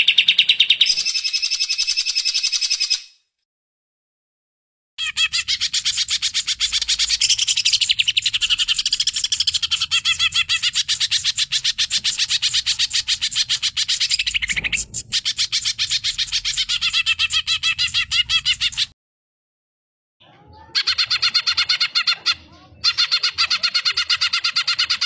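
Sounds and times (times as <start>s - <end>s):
bird singing high chattering notes: 5.0s - 18.9s.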